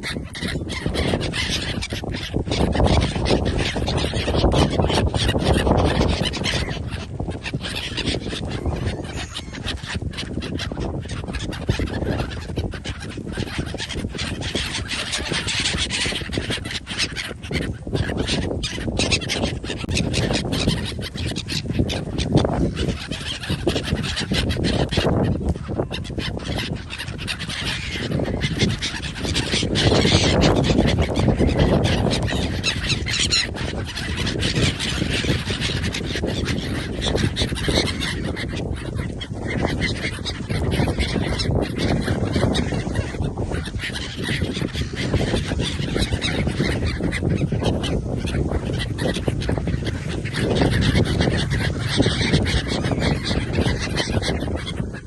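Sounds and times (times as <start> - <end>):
geese honking: 0.0 - 55.0.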